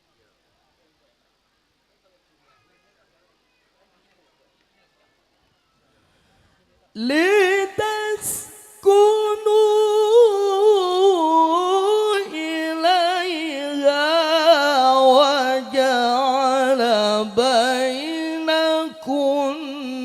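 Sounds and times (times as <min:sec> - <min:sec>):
man reciting melodically: 0:06.9 - 0:20.0.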